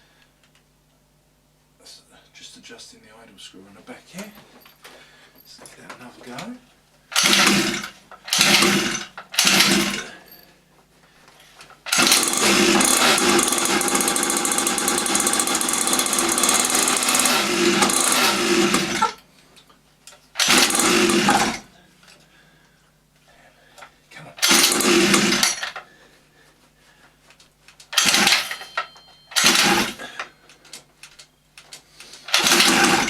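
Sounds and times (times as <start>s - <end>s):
starter cord pulls: 7.1s - 10.1s, 11.6s - 19.2s, 20.4s - 21.7s, 24.4s - 25.9s, 27.8s - 33.0s
two-stroke engine running: 7.2s - 10.1s, 11.9s - 19.2s, 20.4s - 21.6s, 24.4s - 25.6s, 28.0s - 28.5s, 32.3s - 33.0s.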